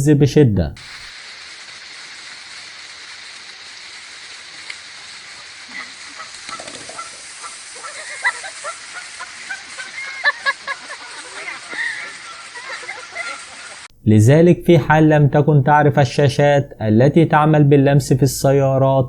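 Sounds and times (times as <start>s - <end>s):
steady hiss: 0.1s - 19.0s
geese honking: 3.8s - 13.9s.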